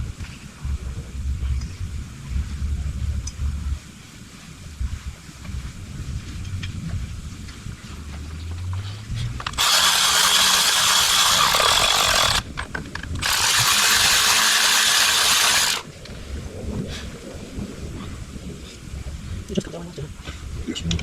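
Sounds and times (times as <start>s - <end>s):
power tool hissing: 9.4s - 12.5s, 13.2s - 15.9s.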